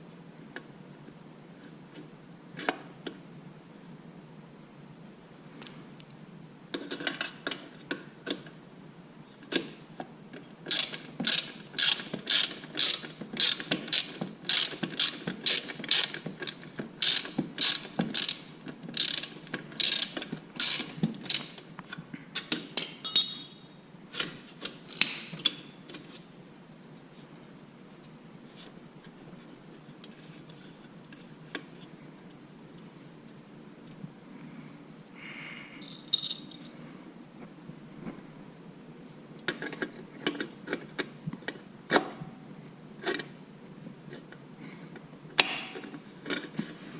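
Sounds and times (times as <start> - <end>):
ratchet wrench clicking: 10.7 - 21.5.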